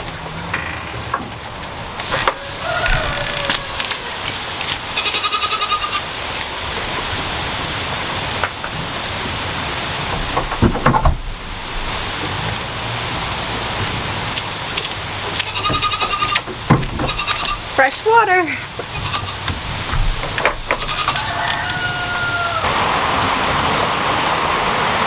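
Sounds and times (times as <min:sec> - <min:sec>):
heavy rain falling: 0:00.0 - 0:25.0
goat bleating: 0:05.0 - 0:06.1, 0:15.4 - 0:16.4, 0:17.0 - 0:17.7, 0:18.8 - 0:19.5, 0:20.7 - 0:22.7
knocks: 0:10.1 - 0:11.6, 0:15.6 - 0:17.5, 0:19.5 - 0:21.2.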